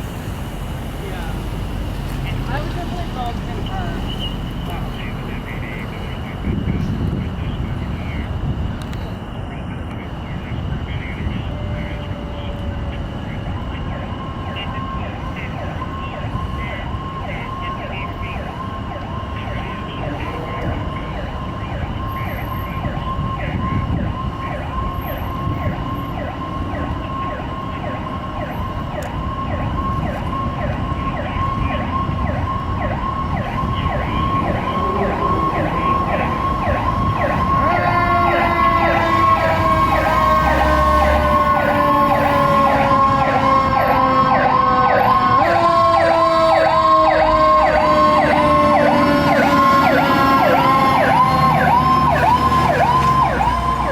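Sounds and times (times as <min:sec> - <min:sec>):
fire truck siren yelping: 0:00.0 - 0:53.9
falling siren tone: 0:11.2 - 0:53.9.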